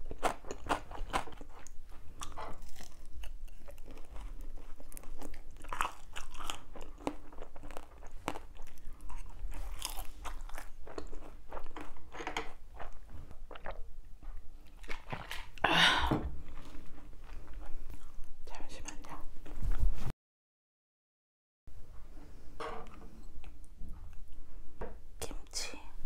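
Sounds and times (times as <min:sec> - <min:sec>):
person chewing crunchy food: 0:00.0 - 0:15.6, 0:16.4 - 0:18.4.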